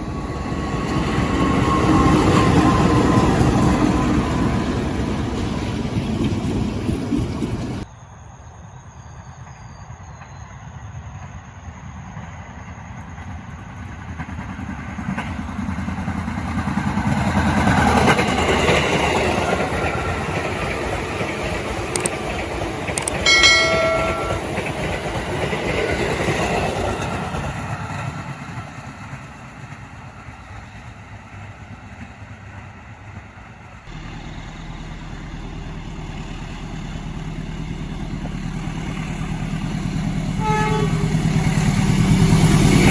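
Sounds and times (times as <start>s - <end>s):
train passing on rails: 0.0s - 42.9s
train horn blast: 40.4s - 41.4s.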